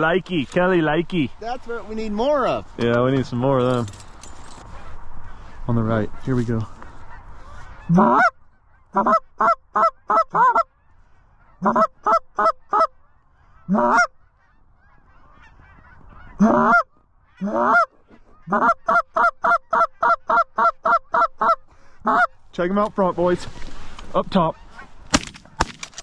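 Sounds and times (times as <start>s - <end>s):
goose call honks and clucks: 4.6s - 22.4s, 24.2s - 25.0s.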